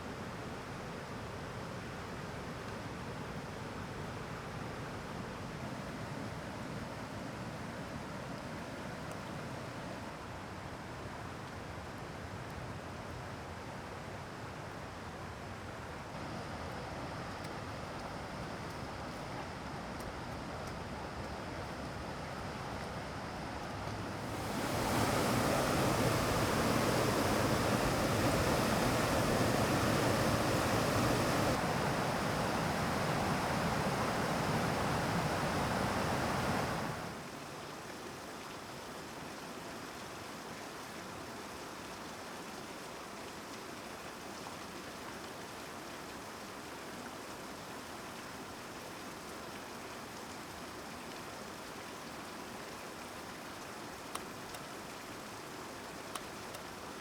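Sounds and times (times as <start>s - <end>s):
mountain stream rushing over rocks: 23.8s - 57.0s.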